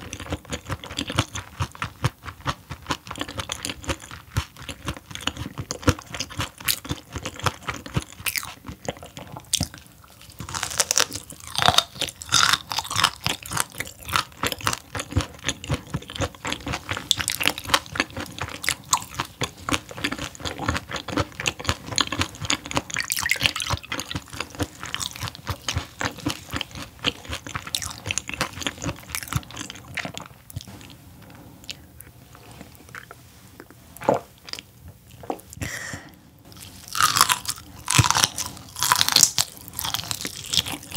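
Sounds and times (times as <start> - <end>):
crunchy chewing of fish bones: 0.0 - 31.0, 36.5 - 40.9.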